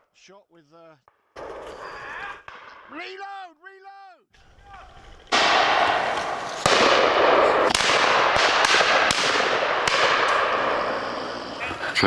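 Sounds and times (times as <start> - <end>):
shotgun shots: 5.3 - 11.4.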